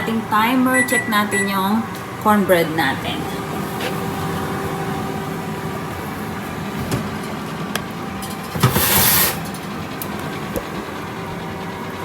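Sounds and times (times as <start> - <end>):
oven humming: 0.0 - 12.0
pan clattering: 8.2 - 9.7.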